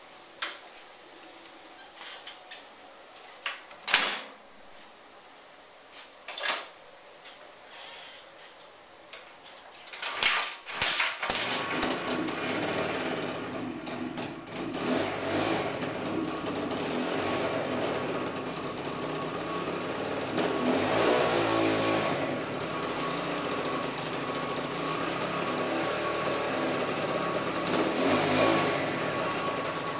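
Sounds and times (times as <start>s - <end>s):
dirt bike engine running and revving: 11.4s - 29.9s.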